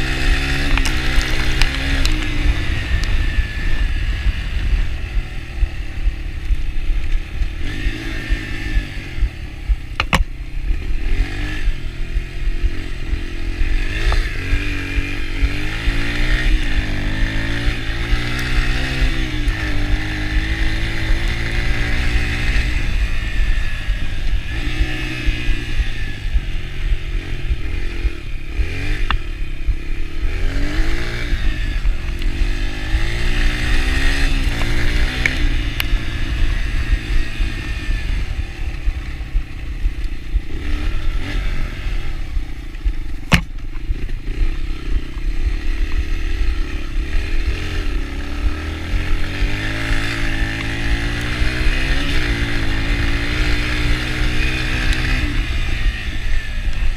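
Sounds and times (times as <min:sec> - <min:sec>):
dirt bike engine revving: 0:00.0 - 0:56.9
sharp knock: 0:43.3 - 0:43.8.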